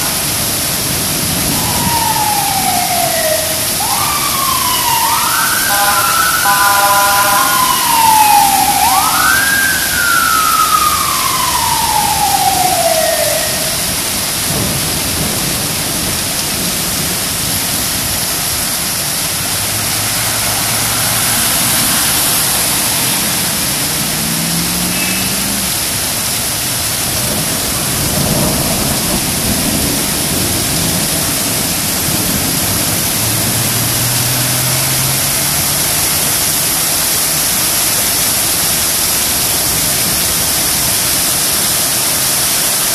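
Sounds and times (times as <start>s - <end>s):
heavy rain hissing: 0.0s - 42.9s
siren wailing: 1.2s - 14.4s, 19.8s - 26.1s.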